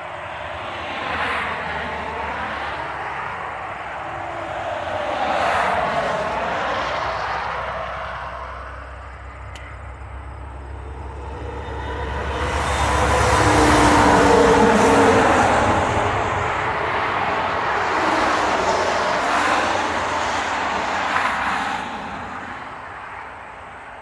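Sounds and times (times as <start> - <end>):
passing motor vehicle engine: 0.0 - 22.9.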